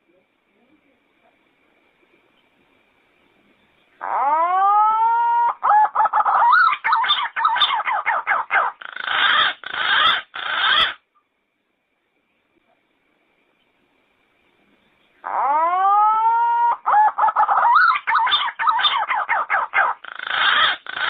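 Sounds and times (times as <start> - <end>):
pigeon calling: 4.0 - 11.0, 15.2 - 21.0.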